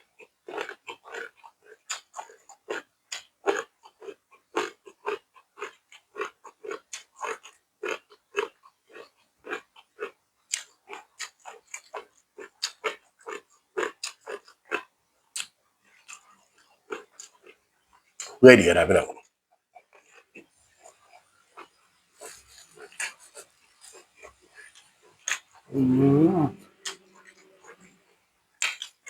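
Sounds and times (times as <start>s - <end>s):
wet chewing smacks: 0.5s - 17.6s.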